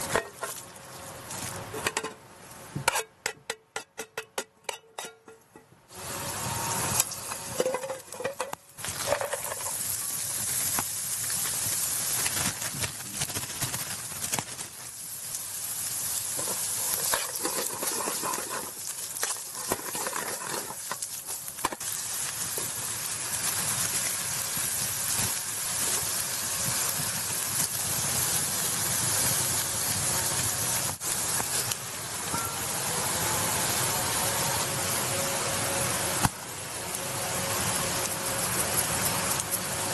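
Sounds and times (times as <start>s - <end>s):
food sizzling in a pan: 5.9s - 13.2s, 13.8s - 39.9s
pops and crackles: 7.0s - 28.3s.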